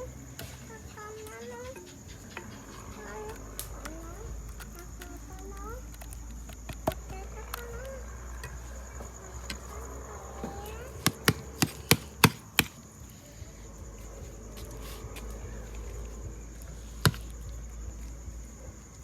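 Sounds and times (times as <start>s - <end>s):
high insect trill: 0.0s - 19.0s
sharp knocks: 11.0s - 12.8s.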